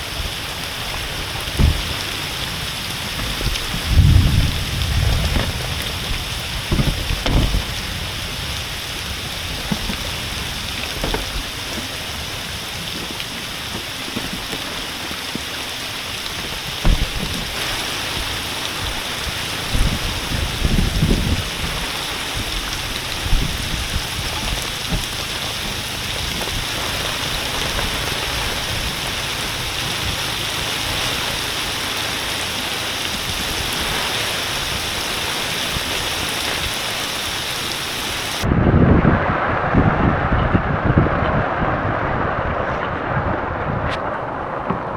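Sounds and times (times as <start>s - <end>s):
heavy rain falling: 0.0s - 44.9s
low thumps: 0.8s - 12.3s, 16.4s - 17.6s.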